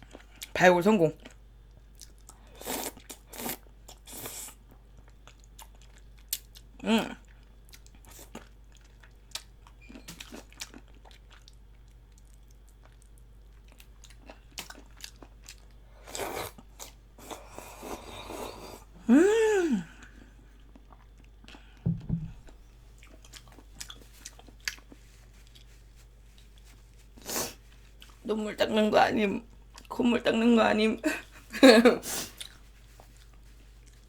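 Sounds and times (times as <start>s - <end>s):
person humming: 19.0s - 19.9s
chewing and sucking: 22.4s - 28.2s, 32.1s - 34.0s.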